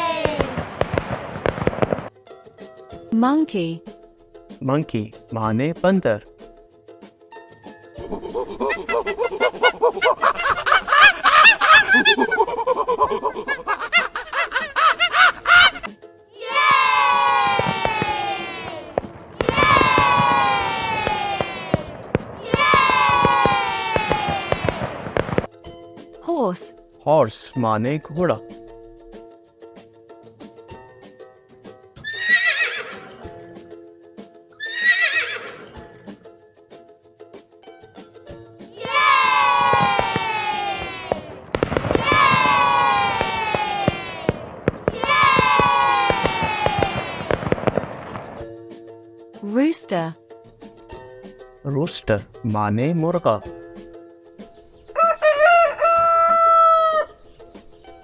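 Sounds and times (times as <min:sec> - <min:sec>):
horse whinnying: 0:32.0 - 0:33.2, 0:34.6 - 0:36.0
light music with ticking beat: 0:47.4 - 0:56.2.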